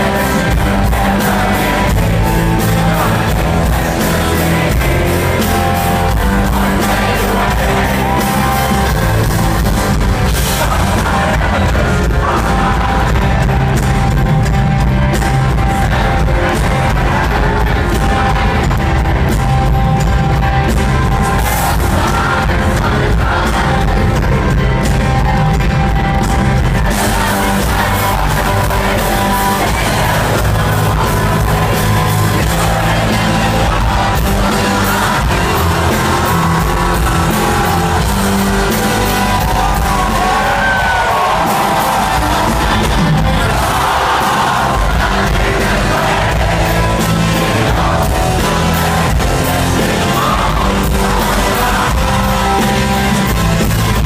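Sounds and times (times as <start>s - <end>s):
person singing: 0.0s - 14.6s
crowd yelling: 0.0s - 54.0s
live rock band playing: 0.0s - 54.0s.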